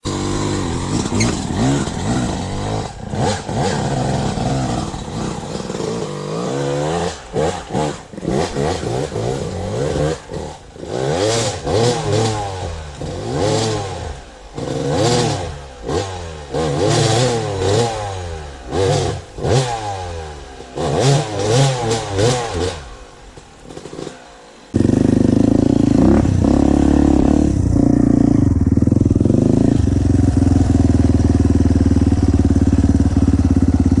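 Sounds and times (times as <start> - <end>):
engine clatter: 0.0 - 15.6, 20.6 - 34.0
dirt bike engine revving: 0.0 - 34.0
steady low rumble: 24.8 - 32.4.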